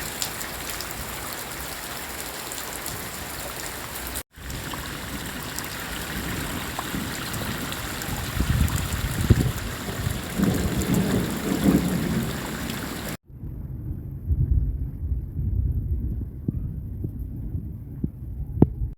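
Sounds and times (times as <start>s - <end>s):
heavy rain falling: 0.0s - 13.2s
thunder rumbling: 2.7s - 18.9s
low throbbing hum: 13.2s - 18.9s.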